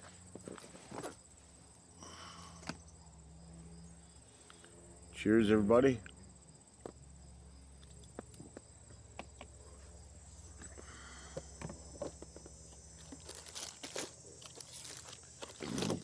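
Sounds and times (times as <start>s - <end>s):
crickets trilling: 0.0s - 16.0s
handling clicks and rustles: 7.8s - 16.0s.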